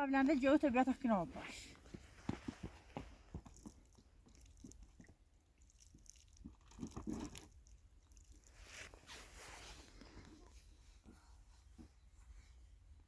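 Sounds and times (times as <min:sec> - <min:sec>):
small knocks and rustles: 0:01.8 - 0:04.1.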